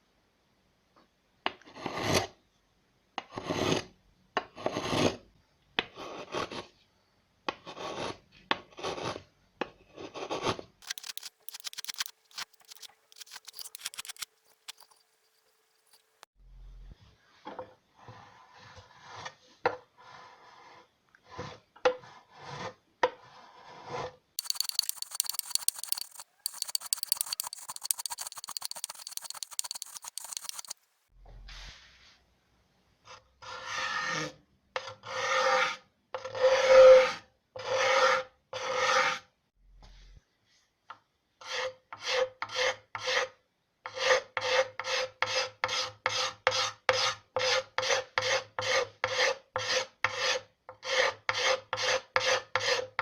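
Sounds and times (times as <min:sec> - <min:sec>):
rasp filing wood: 0:10.8 - 0:16.0, 0:24.4 - 0:30.8.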